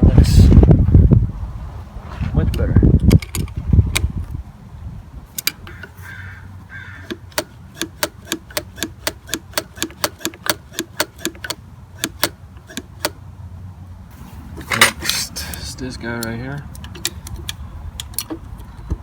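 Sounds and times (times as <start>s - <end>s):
sharp ringing clicks: 5.4s - 6.0s, 7.0s - 13.2s, 14.6s - 19.0s.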